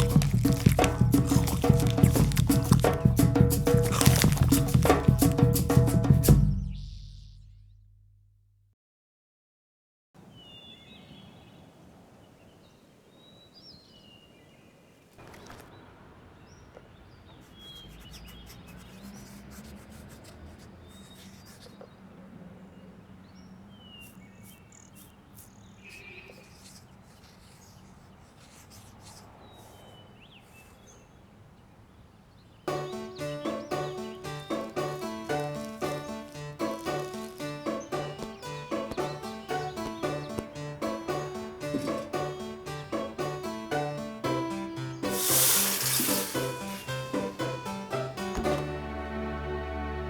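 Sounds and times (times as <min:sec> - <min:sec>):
bird chirps: 0:06.4 - 0:07.8, 0:12.3 - 0:19.2, 0:20.8 - 0:43.8, 0:44.4 - 0:48.6.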